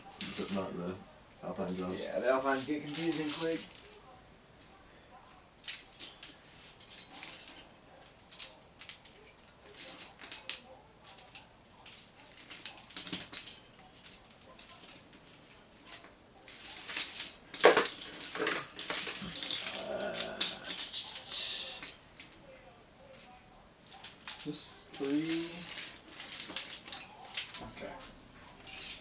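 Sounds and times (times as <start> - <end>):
carabiners clinking and rattling: 0.0 - 22.4, 23.1 - 29.0.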